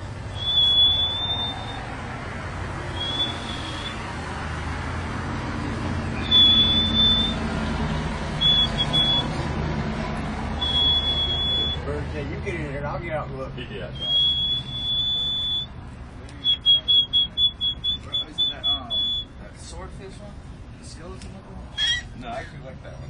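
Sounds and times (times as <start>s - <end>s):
high whistled notes: 0.3s - 1.9s, 2.9s - 4.1s, 6.2s - 7.4s, 8.4s - 9.4s, 10.6s - 11.8s, 14.0s - 15.7s, 16.4s - 19.3s.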